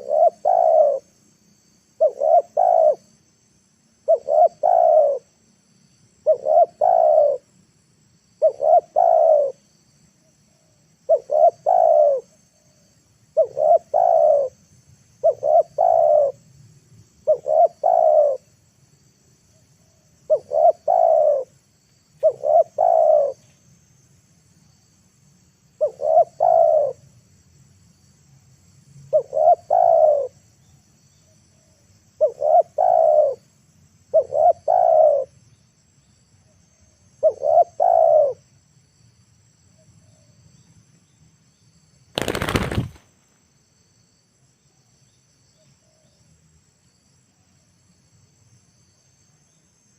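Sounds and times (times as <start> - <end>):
dove cooing: 0.0 - 1.1, 2.0 - 3.1, 4.1 - 5.3, 6.2 - 7.5, 8.4 - 9.6, 11.1 - 12.3, 13.4 - 14.6, 15.2 - 16.4, 17.3 - 18.4, 20.3 - 21.5, 22.2 - 23.4, 25.8 - 27.0, 29.1 - 30.3, 32.2 - 33.4, 34.1 - 35.3, 37.2 - 38.4.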